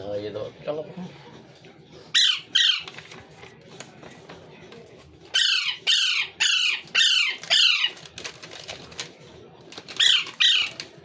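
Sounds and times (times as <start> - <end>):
parrot calling: 2.1 - 2.9, 5.3 - 8.0, 10.0 - 10.9.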